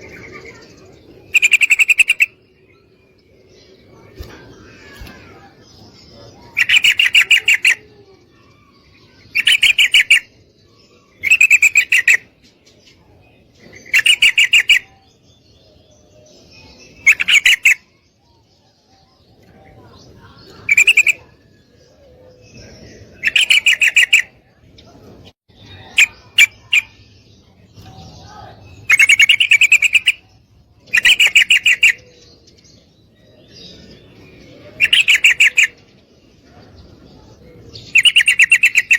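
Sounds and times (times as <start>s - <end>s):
sharp bird chirps: 0.0s - 3.3s, 3.9s - 12.5s, 13.6s - 15.2s, 16.5s - 18.5s, 22.5s - 24.5s, 25.5s - 33.9s, 34.6s - 35.9s, 37.8s - 38.9s
bulbul chattering call: 0.1s - 2.7s, 6.0s - 12.3s, 13.8s - 15.1s, 20.4s - 21.4s, 22.4s - 24.4s, 28.0s - 32.4s, 34.6s - 35.9s, 37.7s - 38.9s.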